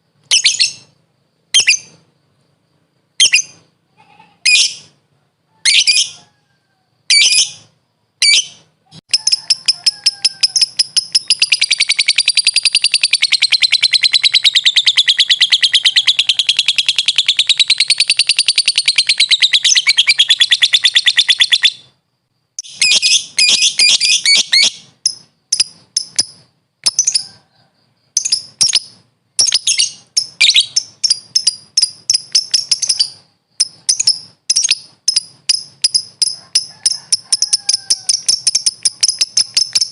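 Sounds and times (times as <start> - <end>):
lovebird rapid chattering trill: 0.3 - 1.0, 8.2 - 21.9, 22.6 - 27.4, 28.1 - 39.9
lovebird shrill calls: 8.2 - 21.9, 22.6 - 27.4, 28.2 - 39.9.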